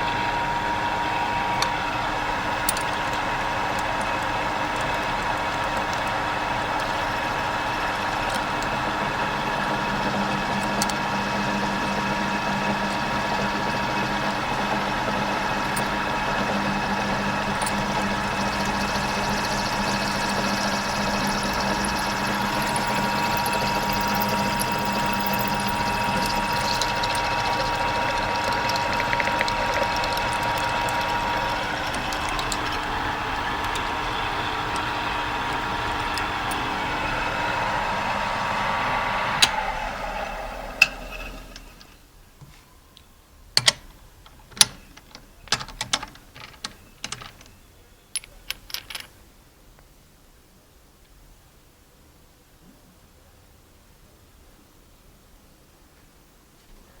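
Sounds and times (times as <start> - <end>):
small electric motor running: 0.0 - 42.0.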